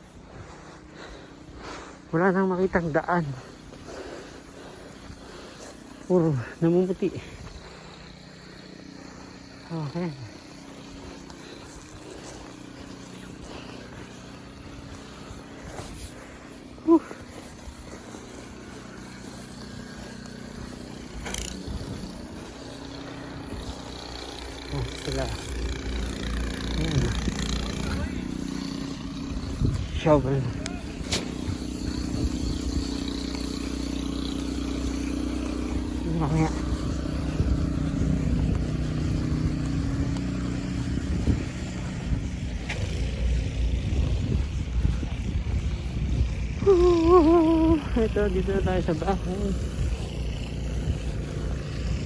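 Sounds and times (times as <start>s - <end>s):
car engine hum: 0.0s - 52.0s
tyre noise on snow: 0.0s - 52.0s.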